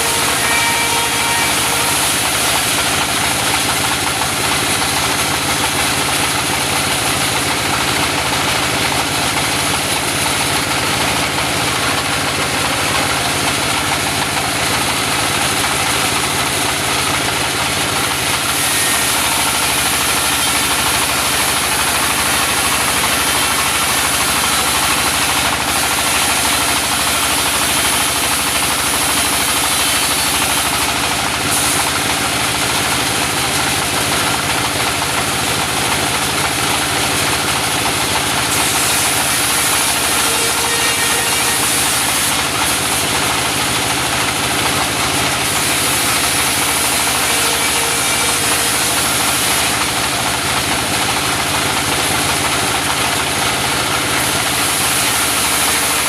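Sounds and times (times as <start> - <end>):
circular saw ripping a log: 0.0 - 4.2, 18.0 - 32.6, 38.4 - 43.5, 45.2 - 50.4, 54.0 - 56.0.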